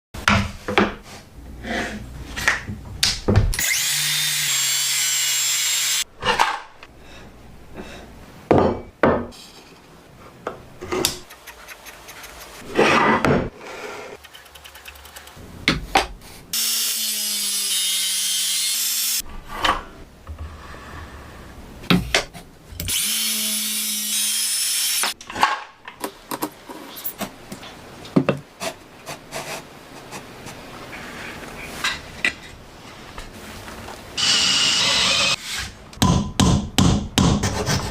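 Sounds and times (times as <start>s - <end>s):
power tool cutting wood: 3.6s - 6.0s, 16.6s - 19.2s, 22.9s - 25.2s, 34.2s - 35.7s.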